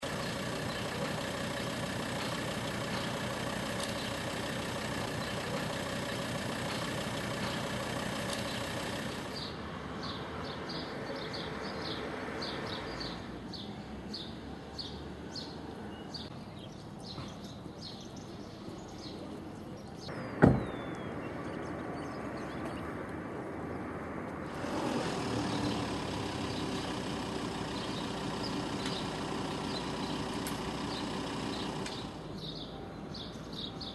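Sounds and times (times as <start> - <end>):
street traffic: 0.0 - 33.9
sharp thump: 20.4 - 20.8.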